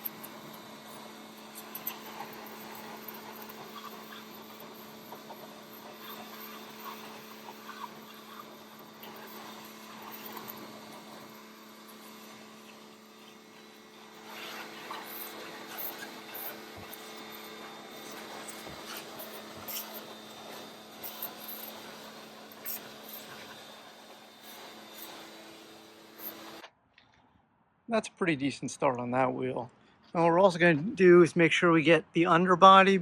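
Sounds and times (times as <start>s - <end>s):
pressure washer motor hum: 0.0s - 26.7s
water jet spraying: 12.0s - 26.6s.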